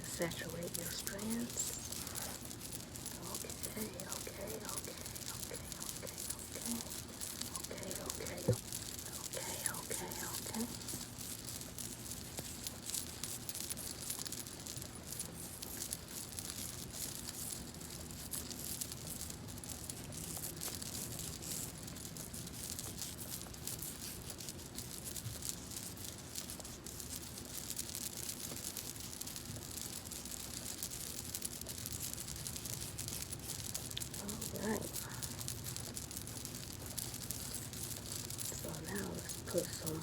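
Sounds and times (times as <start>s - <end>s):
hands rubbing hair crackling: 0.0s - 14.4s, 32.5s - 40.0s.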